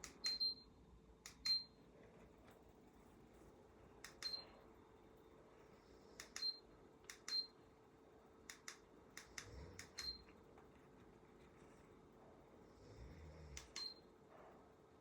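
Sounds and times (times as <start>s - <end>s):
sharp clicks in pairs: 1.2s - 1.5s, 4.0s - 4.4s, 6.2s - 7.5s, 8.4s - 10.2s.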